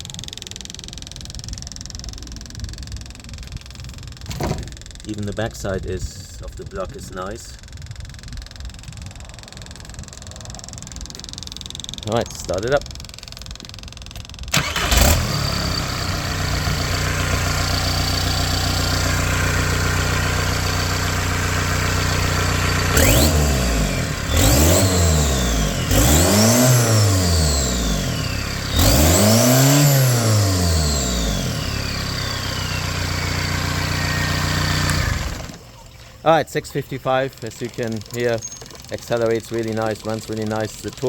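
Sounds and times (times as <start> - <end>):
diesel engine starting and idling: 7.5 - 41.0
engine revving: 14.5 - 35.7
turbo whistle: 31.6 - 34.6.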